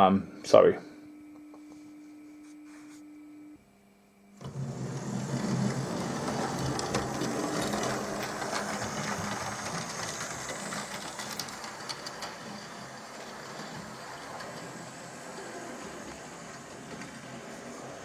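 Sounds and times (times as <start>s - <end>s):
wheels clicking over rail joints: 4.4s - 17.6s.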